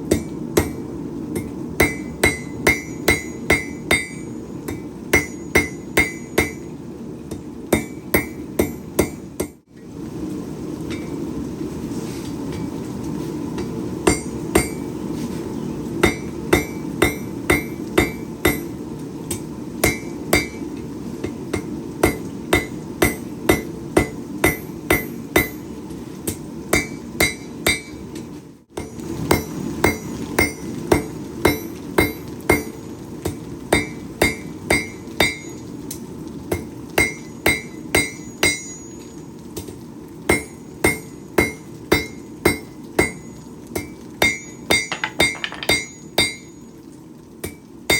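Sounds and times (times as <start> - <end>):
hammer striking steel on anvil: 0.1 - 0.8, 1.4 - 6.7, 7.7 - 9.6, 14.1 - 14.8, 16.0 - 18.7, 19.8 - 20.6, 21.5 - 25.6, 26.3 - 28.0, 28.8 - 32.7, 33.8 - 35.5, 37.0 - 38.8, 40.3 - 43.2, 43.8 - 46.5.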